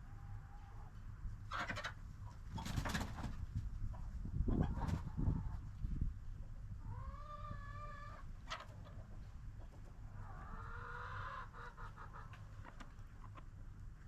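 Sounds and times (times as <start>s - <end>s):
chickens calling: 0.0s - 5.7s, 6.8s - 13.6s
low steady rumble: 3.3s - 14.0s.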